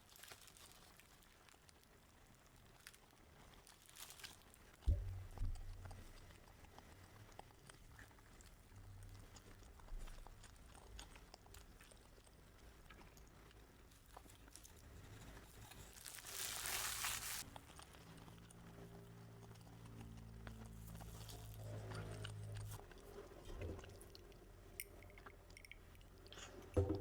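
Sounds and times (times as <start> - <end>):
low steady hum: 4.8 - 16.4, 17.4 - 27.0
person eating food: 5.1 - 27.0.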